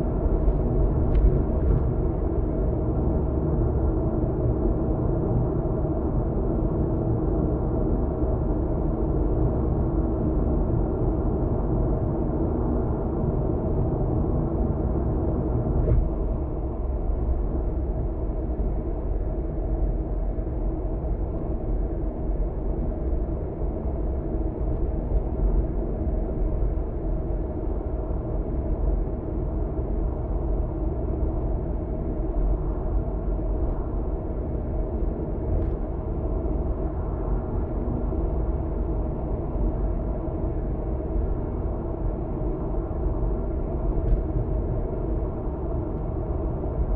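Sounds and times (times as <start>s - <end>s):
tyre rumble inside car: 0.3s - 2.2s.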